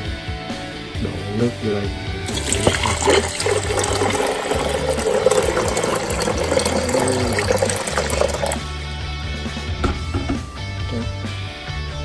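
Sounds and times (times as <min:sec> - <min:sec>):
water pouring into reservoir: 0:02.3 - 0:08.7.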